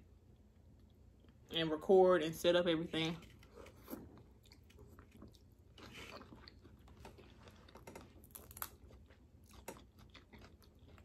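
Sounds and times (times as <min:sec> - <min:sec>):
small clicks and crunches: 0:03.2 - 0:11.0
person chewing crawfish: 0:03.3 - 0:11.0.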